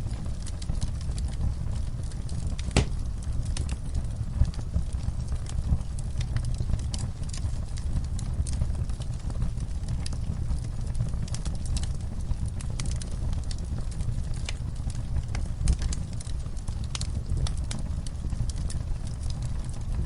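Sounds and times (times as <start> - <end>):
fire crackling and popping: 0.0 - 20.0
flames rumbling: 0.0 - 20.0.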